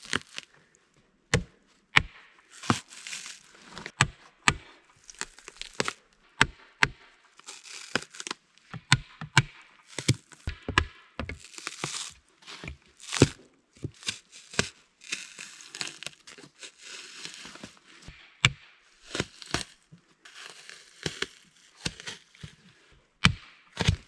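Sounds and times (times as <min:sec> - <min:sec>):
wood crackling and tearing: 0:00.0 - 0:00.6, 0:02.5 - 0:03.9, 0:05.0 - 0:06.0, 0:07.4 - 0:08.4, 0:09.8 - 0:10.6, 0:11.3 - 0:17.9, 0:19.0 - 0:22.7
blade chopping wood: 0:01.3 - 0:16.1, 0:17.3 - 0:19.8, 0:20.4 - 0:22.6, 0:23.2 - 0:24.0.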